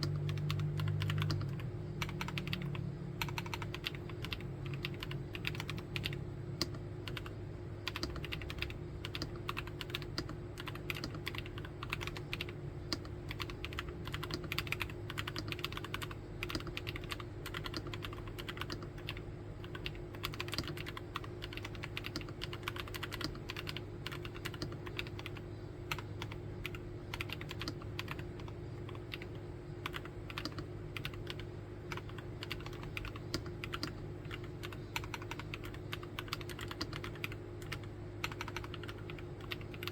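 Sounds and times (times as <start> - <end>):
faint low hum: 0.0 - 39.9
fast typing on mechanical keyboard: 0.0 - 39.9.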